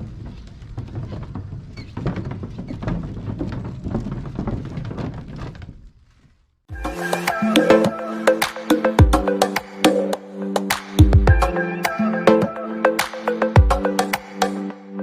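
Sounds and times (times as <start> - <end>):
bicycle rattling and rumbling: 0.0 - 6.7
music with clacking beat: 6.7 - 14.8.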